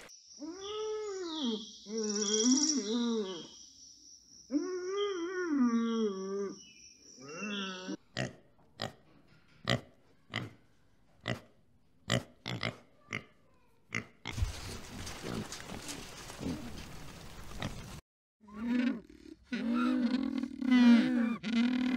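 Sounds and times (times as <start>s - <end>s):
pitched animal call: 18.4s - 21.9s.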